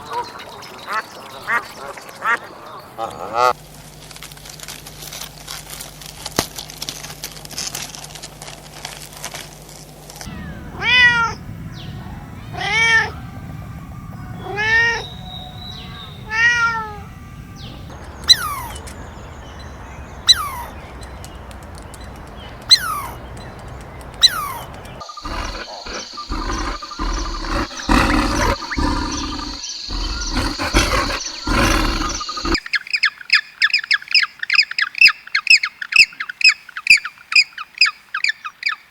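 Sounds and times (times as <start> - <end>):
rapid squawks: 24.2 - 32.6
animal calls rising and falling: 25.3 - 32.6.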